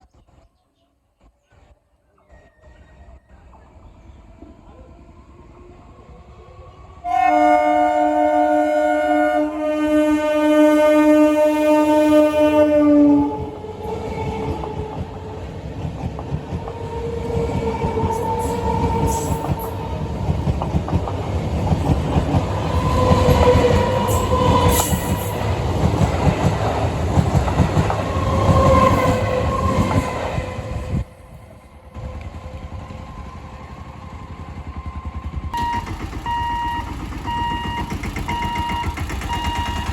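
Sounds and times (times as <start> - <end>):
train rumbling on rails: 1.2 - 39.9
train horn blast: 7.0 - 15.0.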